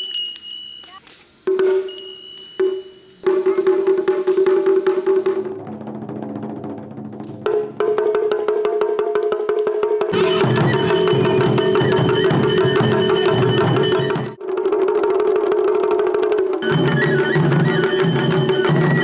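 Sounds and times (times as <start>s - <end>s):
held melodic tone: 0.0s - 5.5s, 10.1s - 14.4s, 16.6s - 19.0s
taiko drum ensemble playing: 2.6s - 15.2s, 15.9s - 19.0s.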